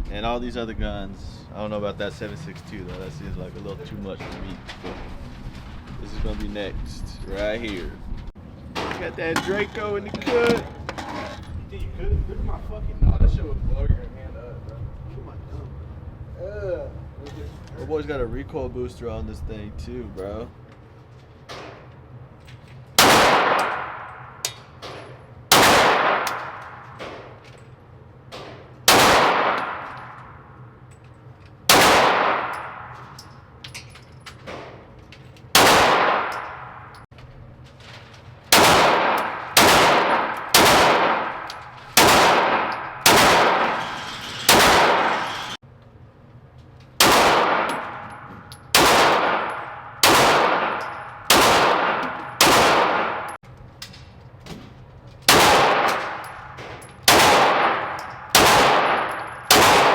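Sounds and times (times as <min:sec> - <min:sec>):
gunshots with long echo: 0:23.0 - 0:24.4, 0:25.5 - 0:27.4, 0:28.8 - 0:30.4, 0:31.7 - 0:33.0, 0:35.6 - 0:37.0, 0:38.5 - 0:45.6, 0:47.0 - 0:53.4, 0:55.3 - 0:59.9.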